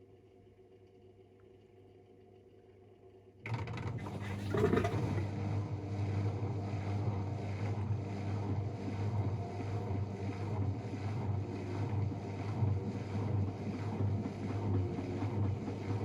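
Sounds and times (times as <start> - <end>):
washing machine spinning: 3.8 - 5.5.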